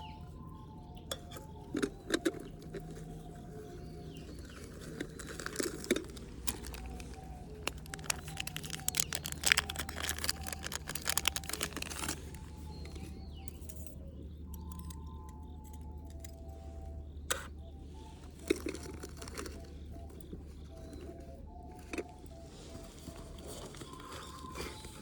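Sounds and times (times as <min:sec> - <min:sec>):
rapid clicking and crackling: 0:04.4 - 0:12.4
slow recorder melody: 0:05.5 - 0:25.0.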